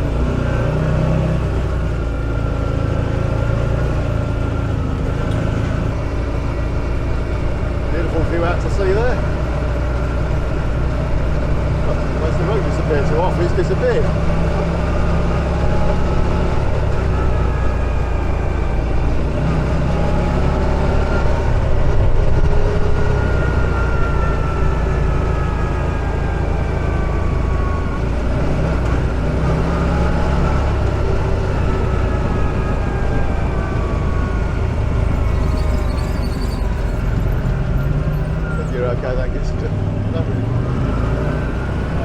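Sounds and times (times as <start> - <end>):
buggy engine droning: 0.0 - 42.0
engine whine: 0.0 - 42.0.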